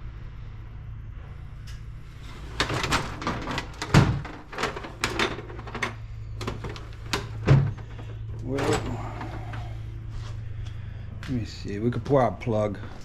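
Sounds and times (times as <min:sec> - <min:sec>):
steady low hum: 0:00.0 - 0:13.0
tools clattering and knocking: 0:02.4 - 0:08.9.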